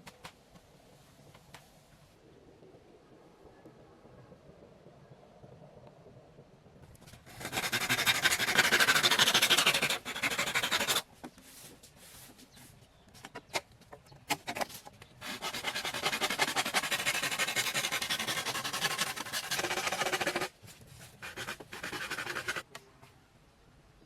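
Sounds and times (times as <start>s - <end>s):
rasping scrape on wood: 7.3s - 11.0s, 15.2s - 20.5s, 21.1s - 22.6s.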